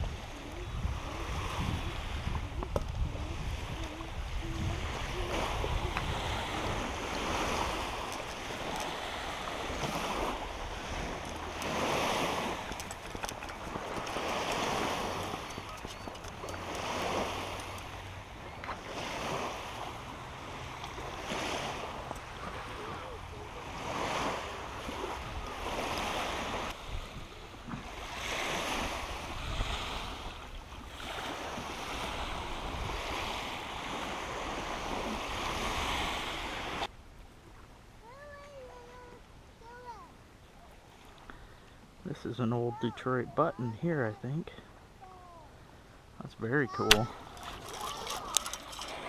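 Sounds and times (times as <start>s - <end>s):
wind gusts on microphone: 0.0s - 36.9s.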